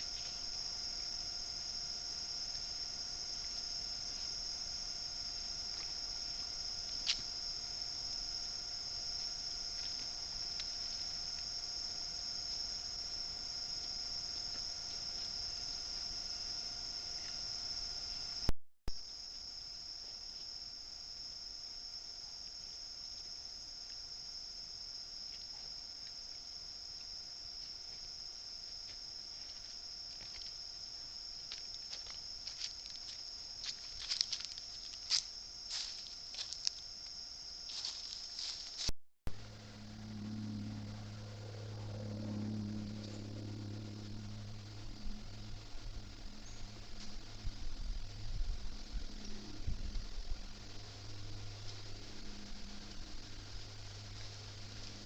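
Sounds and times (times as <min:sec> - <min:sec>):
crickets chirring: 0:00.0 - 0:55.0
high-pitched trilling insects: 0:00.0 - 0:55.0
rustling in dry leaves: 0:31.4 - 0:37.1, 0:37.7 - 0:38.9.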